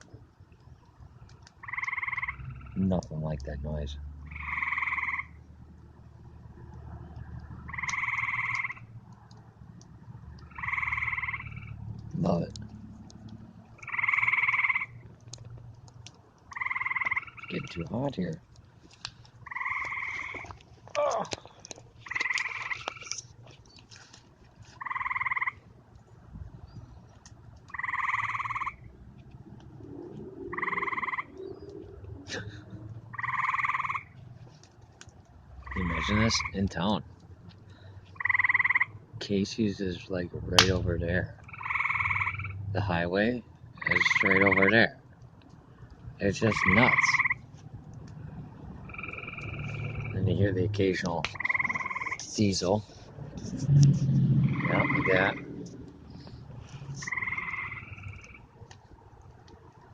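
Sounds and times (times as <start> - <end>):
frogs trilling: 1.5 - 5.6, 7.1 - 9.0, 10.2 - 15.0, 16.4 - 18.2, 19.4 - 23.3, 24.8 - 25.7, 27.6 - 29.0, 29.8 - 34.2, 35.6 - 37.0, 37.7 - 45.0, 46.2 - 47.5, 48.2 - 53.0, 54.4 - 58.7.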